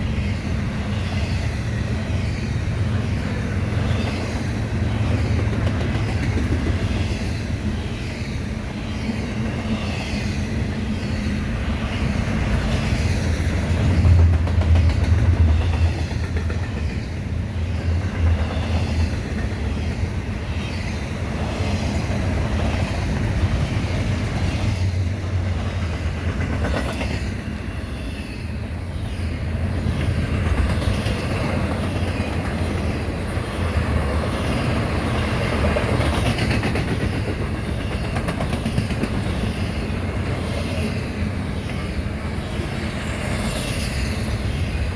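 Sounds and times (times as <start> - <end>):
rumble of wheels on rail: 0.0 - 44.9.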